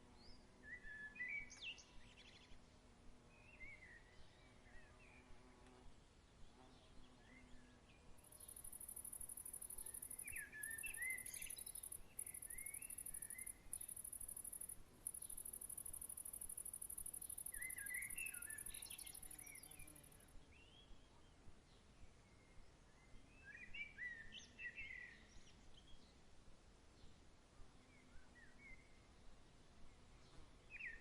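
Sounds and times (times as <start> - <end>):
cricket trilling: 8.3 - 20.2
warbling bird chirps: 8.3 - 20.2.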